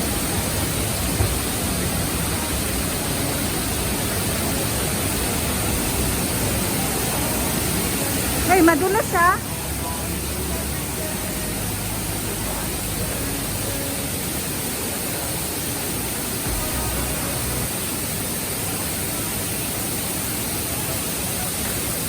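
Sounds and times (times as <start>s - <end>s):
waterfall roaring: 0.0s - 22.0s
low rumble: 16.4s - 17.9s.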